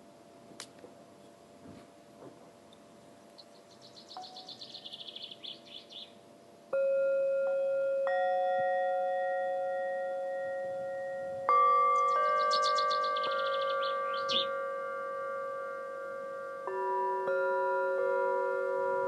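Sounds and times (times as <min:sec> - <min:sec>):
singing bowls ringing: 0:06.6 - 0:19.0
high tinkling trill: 0:06.8 - 0:19.0.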